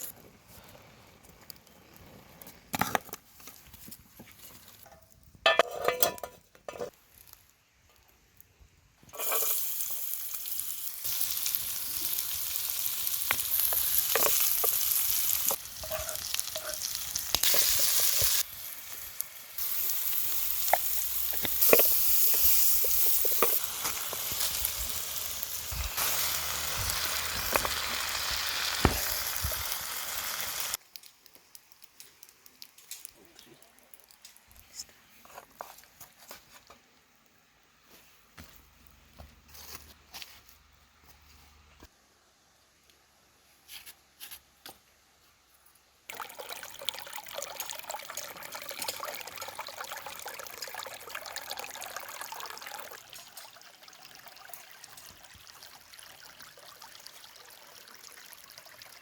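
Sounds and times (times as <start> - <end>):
food frying in hot oil: 9.1 - 34.2, 46.1 - 59.0.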